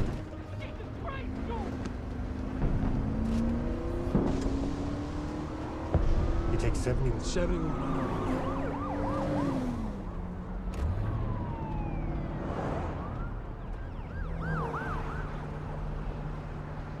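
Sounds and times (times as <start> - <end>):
vehicle engine drone: 0.0 - 17.0
falling siren tones: 2.9 - 16.4
sirens yelping: 3.4 - 17.0.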